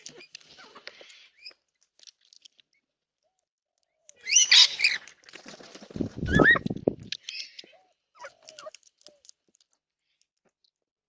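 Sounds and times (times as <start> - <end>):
birds chirping and calling: 4.0 - 8.8.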